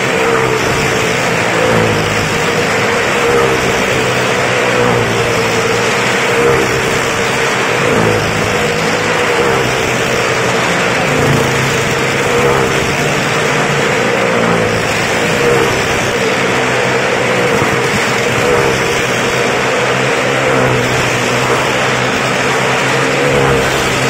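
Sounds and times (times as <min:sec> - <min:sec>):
car engine running hard: 0:00.0 - 0:24.0.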